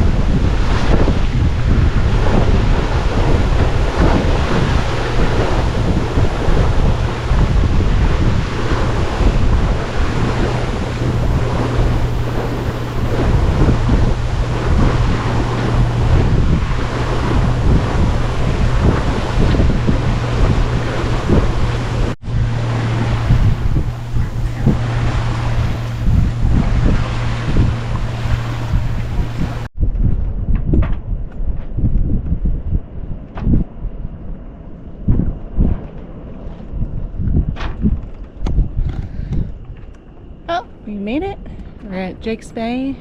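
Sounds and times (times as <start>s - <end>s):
steady low hum: 0.0s - 29.7s
water rushing along hull: 0.0s - 29.7s
wind buffeting microphone: 0.0s - 43.0s.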